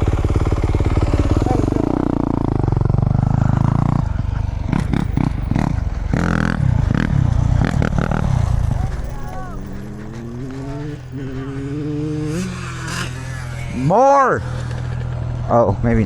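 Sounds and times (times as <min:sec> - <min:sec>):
dirt bike engine running: 0:00.0 - 0:16.0
knocks and clatter: 0:14.4 - 0:15.5.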